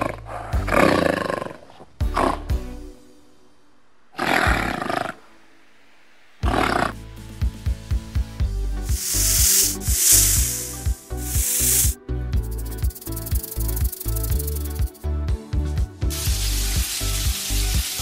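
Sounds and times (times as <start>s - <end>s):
music with drum beat: 6.4s - 18.0s
loud hissing bursts: 8.8s - 15.0s, 16.1s - 18.0s.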